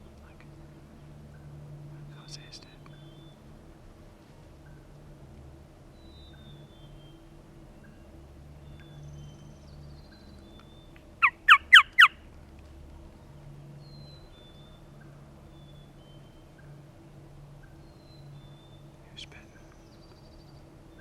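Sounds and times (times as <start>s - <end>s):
faint songbird notes: 0.0s - 3.5s, 5.9s - 12.2s, 12.9s - 21.0s
turkey yelps: 11.2s - 12.2s.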